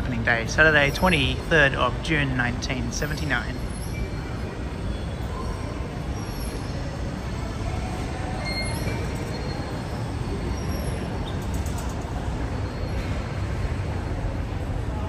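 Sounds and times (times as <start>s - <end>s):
high wheel squeals: 3.6s - 13.6s.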